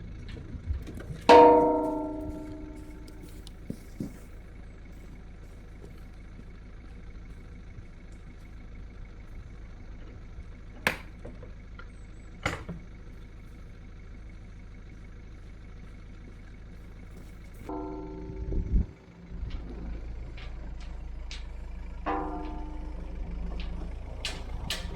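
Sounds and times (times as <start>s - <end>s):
distant tractor engine running: 0.0s - 24.9s
sharp knocks: 1.3s - 3.2s, 19.4s - 24.9s.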